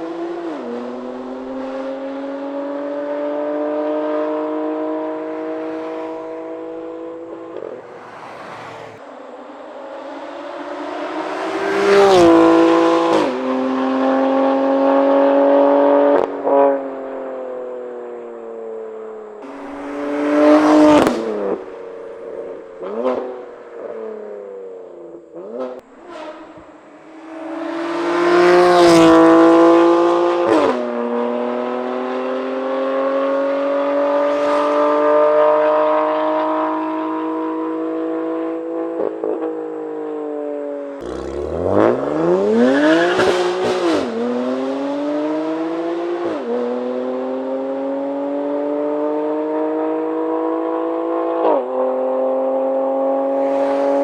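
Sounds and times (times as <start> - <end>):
car engine accelerating hard: 0.0 - 9.0, 19.4 - 24.2, 25.3 - 54.0.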